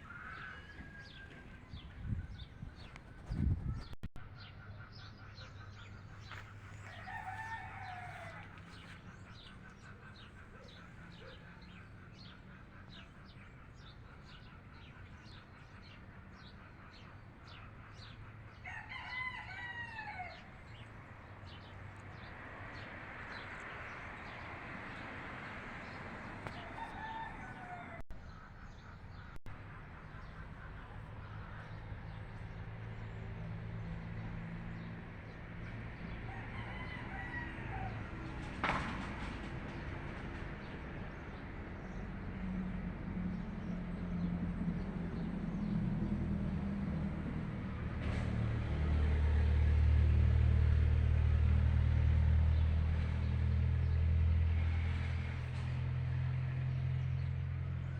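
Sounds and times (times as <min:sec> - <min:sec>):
rooster crowing: 0:00.0 - 0:01.6, 0:06.8 - 0:08.8, 0:18.6 - 0:20.5, 0:26.5 - 0:28.0, 0:36.3 - 0:38.3.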